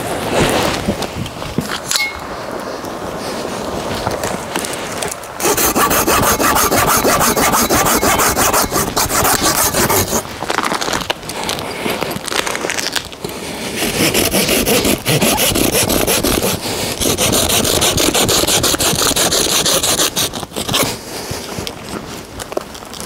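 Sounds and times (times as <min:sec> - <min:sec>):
hand saw cutting wood: 0:05.4 - 0:10.3, 0:13.6 - 0:21.0.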